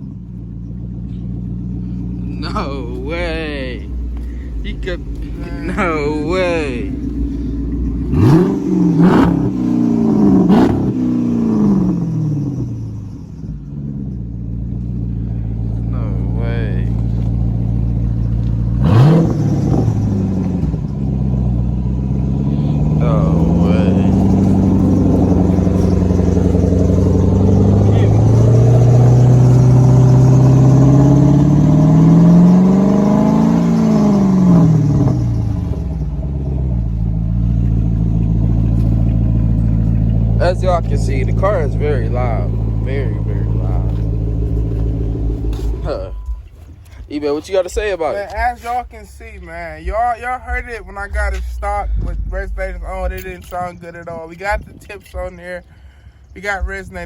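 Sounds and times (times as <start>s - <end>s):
car exhaust revving and idling: 0.0s - 57.0s.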